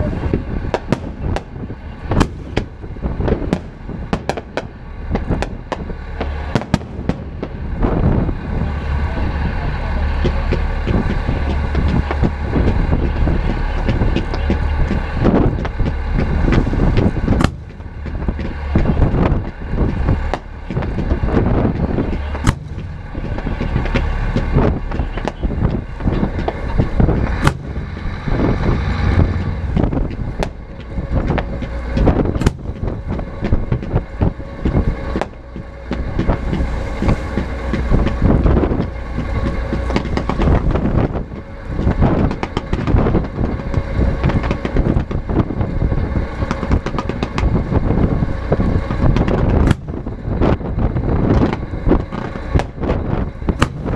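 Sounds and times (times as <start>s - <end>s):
rumble of fireworks bangs: 0.0s - 53.9s
sharp firework cracks: 0.7s - 7.6s, 21.8s - 34.0s.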